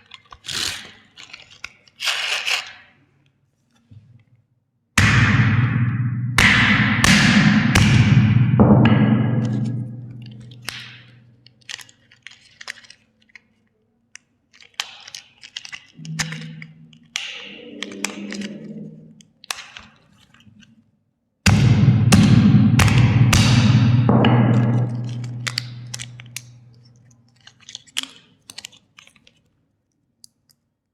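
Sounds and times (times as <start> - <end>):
plastic clicks and crackles: 0.0 - 4.3, 10.1 - 20.9, 24.8 - 30.9
loud low hum: 5.0 - 11.2, 16.0 - 19.2, 21.5 - 27.0
cracking: 9.4 - 13.6, 24.2 - 29.5.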